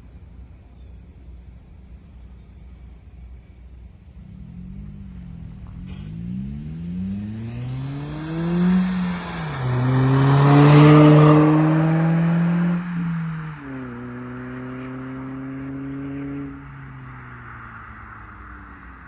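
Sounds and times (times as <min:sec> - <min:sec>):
car engine accelerating: 0:04.0 - 0:19.0.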